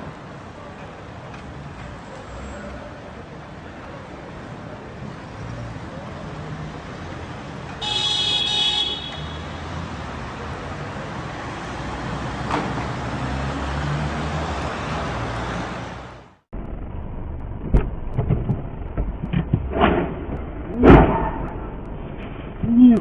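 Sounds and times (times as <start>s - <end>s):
traffic road noise: 0.0s - 23.0s
car horn honking: 7.8s - 9.9s.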